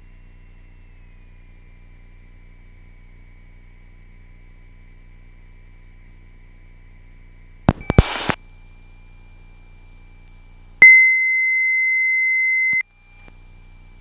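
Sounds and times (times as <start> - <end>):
sharp clicks: 7.7 - 8.4
steady electronic beep: 10.8 - 12.8.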